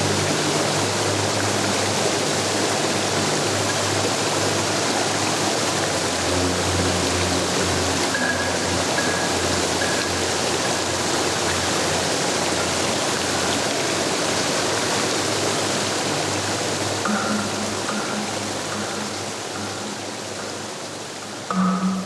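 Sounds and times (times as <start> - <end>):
flowing water rushing: 0.0 - 22.0
faint low synth drone: 15.4 - 22.0.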